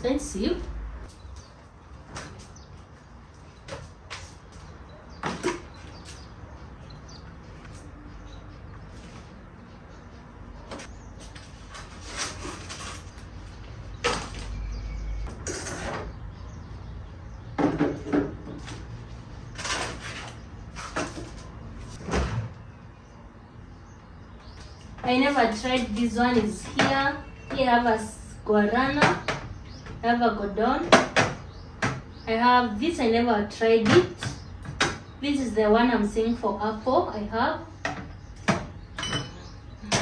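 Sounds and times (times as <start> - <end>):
cupboard doors opening and closing: 19.6 - 22.6.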